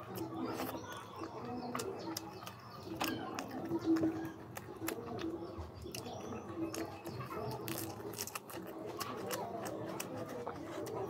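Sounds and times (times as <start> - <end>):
chewing and mouth clicks: 0.0 - 11.0.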